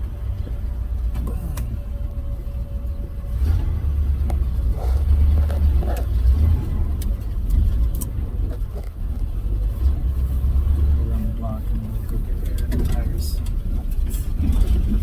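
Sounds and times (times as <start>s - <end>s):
pickup truck engine rumbling: 0.0s - 15.0s.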